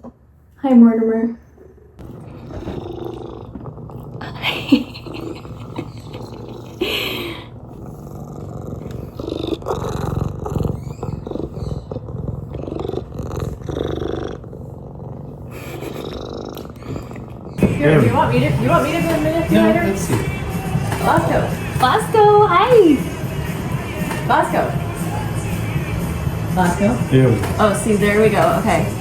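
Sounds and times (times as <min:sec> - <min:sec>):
cat purring: 0:02.0 - 0:29.0.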